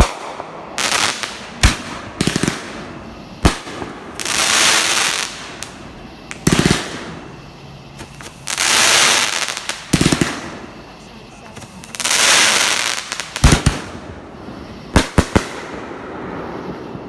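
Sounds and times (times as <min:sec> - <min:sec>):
firework bang: 0:00.0 - 0:07.4
fireworks crackling hiss: 0:00.0 - 0:17.0
fireworks popping: 0:00.0 - 0:17.0.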